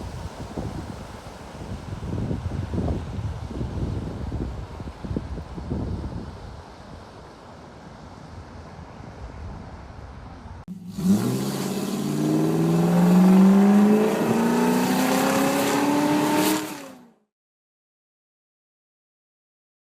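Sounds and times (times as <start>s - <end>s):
wind rumbling on microphone: 0.0s - 16.4s
car engine accelerating: 10.7s - 17.2s.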